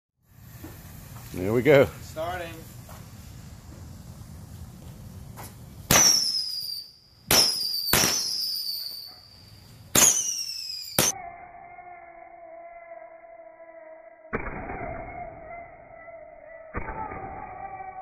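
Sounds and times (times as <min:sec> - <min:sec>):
whistling fireworks: 0:05.9 - 0:18.0
low steady drawn-out tone: 0:10.7 - 0:18.0.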